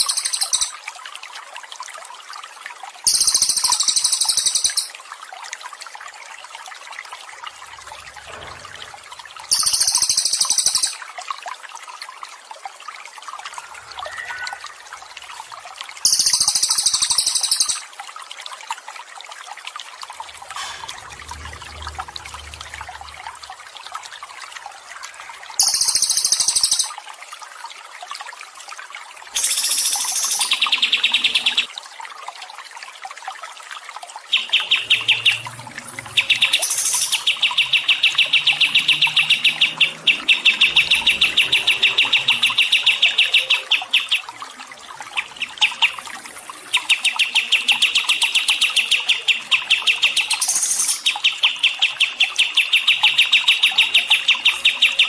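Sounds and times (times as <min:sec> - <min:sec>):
songbird trilling: 0:00.0 - 0:00.7, 0:03.1 - 0:04.9, 0:09.5 - 0:11.0, 0:13.6 - 0:14.8, 0:16.1 - 0:17.8
trickling water: 0:00.0 - 0:55.0.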